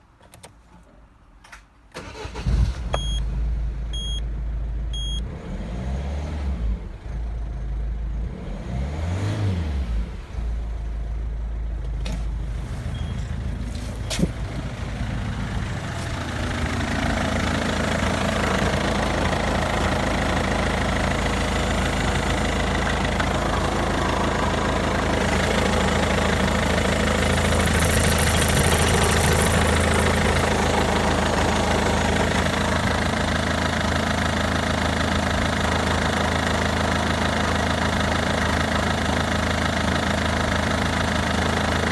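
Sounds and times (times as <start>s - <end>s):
diesel engine starting and idling: 1.9s - 41.9s
short beeps: 3.0s - 3.2s, 4.0s - 4.2s, 5.0s - 5.2s.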